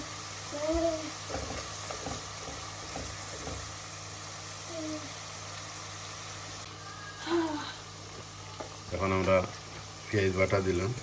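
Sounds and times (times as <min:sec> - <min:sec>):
garlic sizzling in hot oil: 0:00.0 - 0:11.0
spoon knocking against pan: 0:01.2 - 0:03.7.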